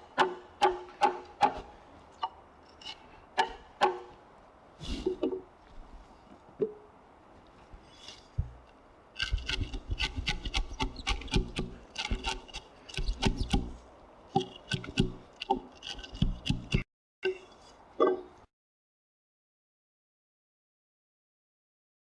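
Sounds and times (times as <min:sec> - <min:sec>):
chisel cutting wood: 0:09.2 - 0:13.8, 0:14.4 - 0:16.8.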